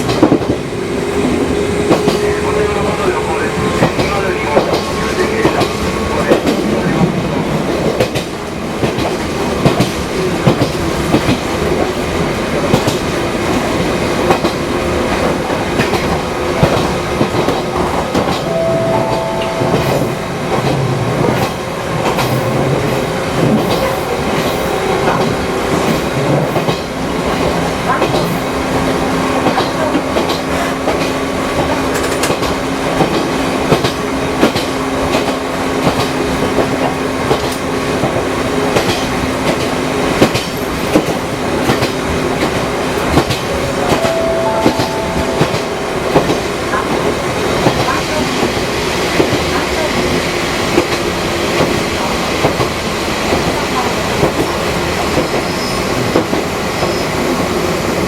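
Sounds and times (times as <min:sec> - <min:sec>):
train rumble: 0:00.0 - 0:58.0
train wheels clacking over rail joints: 0:07.7 - 0:18.5, 0:20.5 - 0:44.1
brief tone: 0:18.5 - 0:20.2, 0:43.9 - 0:46.0.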